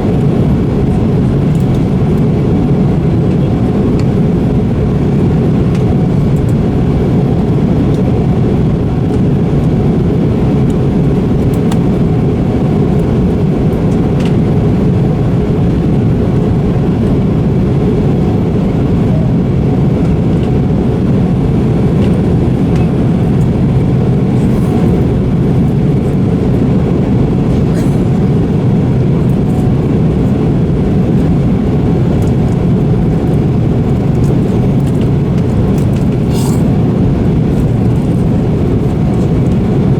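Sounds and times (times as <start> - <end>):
jet cabin engine drone: 0.0 - 39.9.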